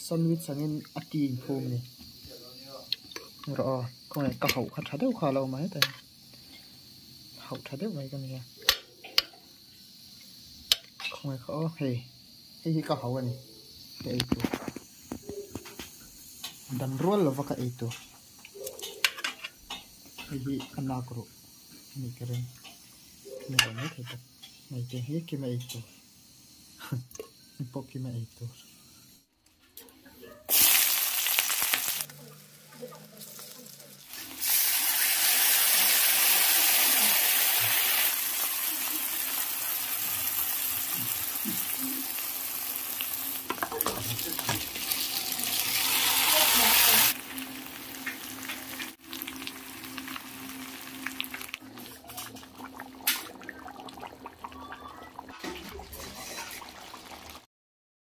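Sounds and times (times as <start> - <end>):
onion and garlic frying in oil: 0.0 - 2.2, 2.9 - 28.9, 30.0 - 57.5
food sizzling in a wok: 0.0 - 8.6, 9.2 - 12.7, 13.7 - 29.3, 30.5 - 57.5
spatula scraping a pan: 23.6 - 24.6, 55.3 - 56.9.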